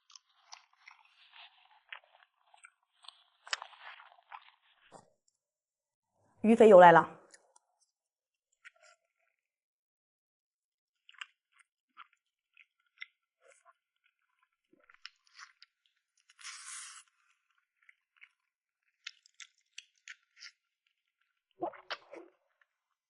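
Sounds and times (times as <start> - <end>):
wet chewing and lip smacks: 0.1 - 4.6, 11.0 - 16.7, 17.4 - 22.3
mouth sucking sound: 16.4 - 17.1.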